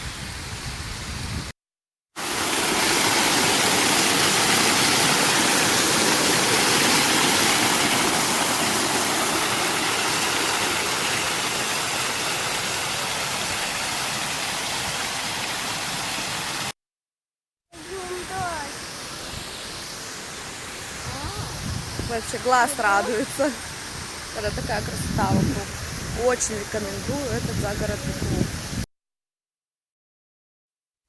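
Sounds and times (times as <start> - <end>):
fountain water splashing: 2.2 - 16.7, 17.8 - 28.8.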